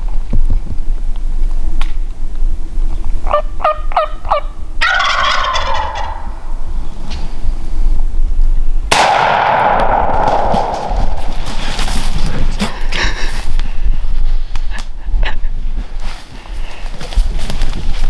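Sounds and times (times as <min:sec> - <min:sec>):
turkey gobbling: 0:03.3 - 0:06.8.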